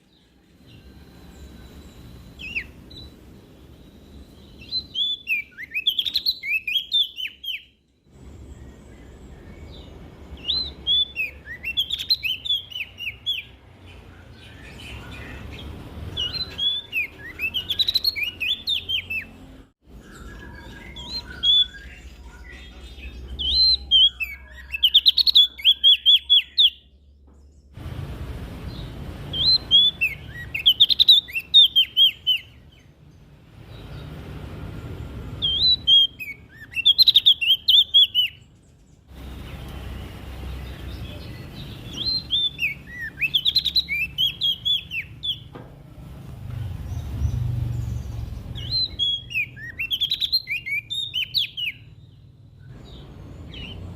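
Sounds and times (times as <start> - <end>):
songbird singing: 0.0 - 53.9
low background rumble: 27.1 - 30.4.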